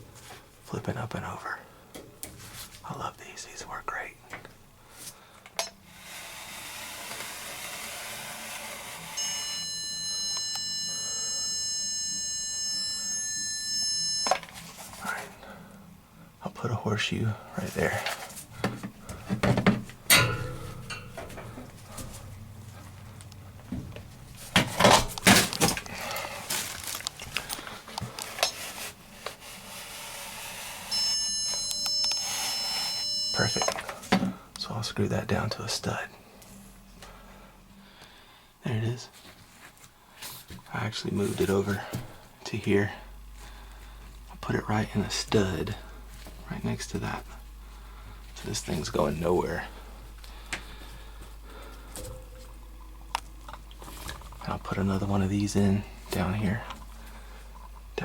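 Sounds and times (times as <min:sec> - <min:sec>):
stud finder high-pitched beep: 0:09.2 - 0:14.6, 0:30.9 - 0:33.9.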